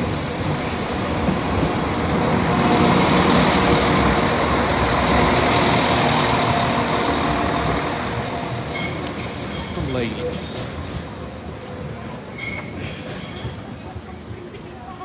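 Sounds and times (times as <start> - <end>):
diesel engines running: 0.0 - 10.6
train wheels on rails: 0.0 - 15.0.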